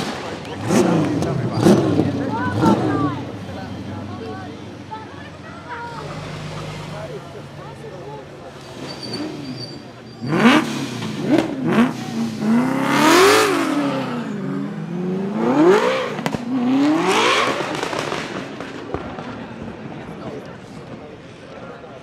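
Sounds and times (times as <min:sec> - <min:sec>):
car engine revving hard: 0:00.0 - 0:04.1, 0:08.6 - 0:18.7.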